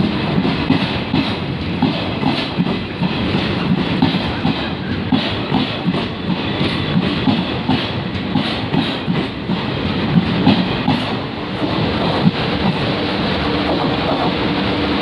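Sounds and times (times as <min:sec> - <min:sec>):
wheels clacking over rail joints: 0:00.0 - 0:12.9
train rumble: 0:00.0 - 0:15.0.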